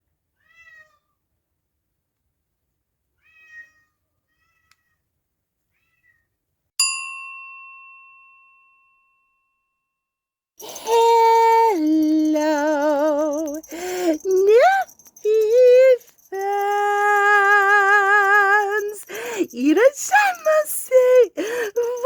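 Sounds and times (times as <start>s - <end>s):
cat meowing: 0.4s - 1.2s, 3.2s - 5.0s, 5.7s - 6.2s
bell-like ding: 6.8s - 9.9s.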